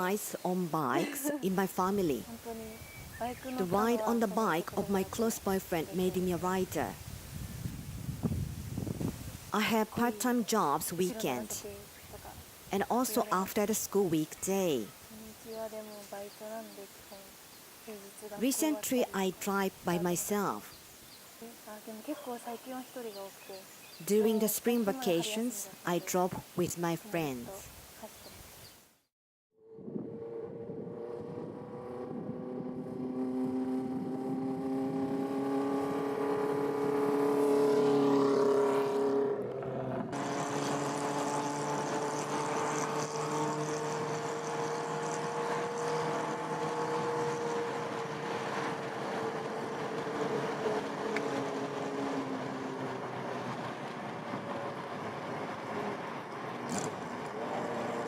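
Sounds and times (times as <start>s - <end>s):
motorcycle engine running: 29.9s - 51.5s.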